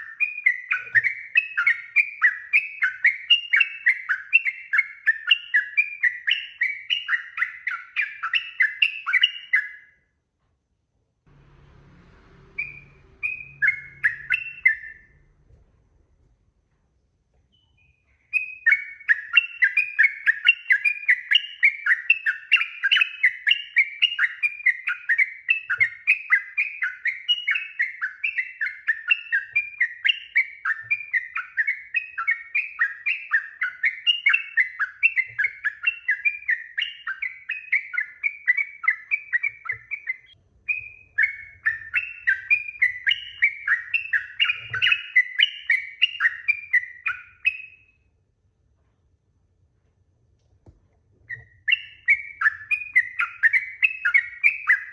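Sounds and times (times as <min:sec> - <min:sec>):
bulbul chattering song: 0:11.4 - 0:15.4, 0:51.3 - 0:54.9.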